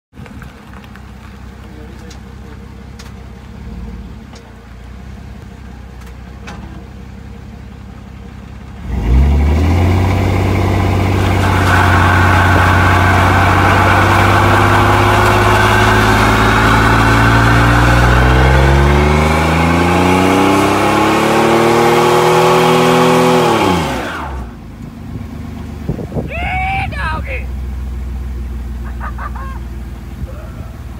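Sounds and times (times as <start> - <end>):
truck engine revving: 8.8 - 24.6.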